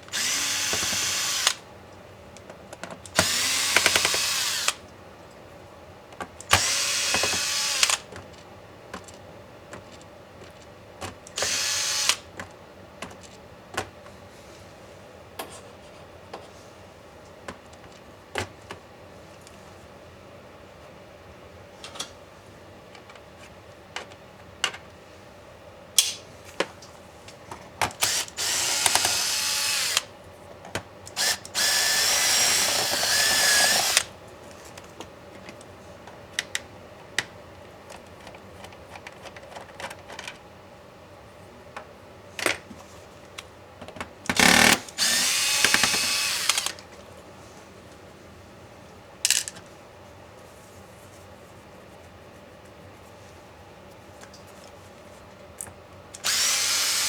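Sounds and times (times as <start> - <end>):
electric screwdriver whirring: 0.1 - 1.6, 3.2 - 4.8, 6.5 - 8.0, 11.4 - 12.2, 28.0 - 30.1, 31.2 - 34.1, 44.3 - 46.8, 56.2 - 57.0.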